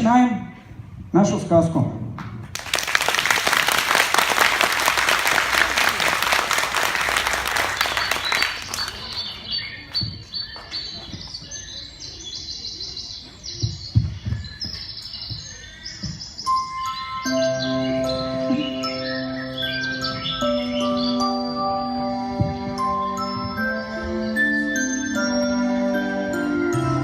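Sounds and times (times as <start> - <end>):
audience applauding: 2.5 - 9.5
birds chirping: 2.9 - 21.6.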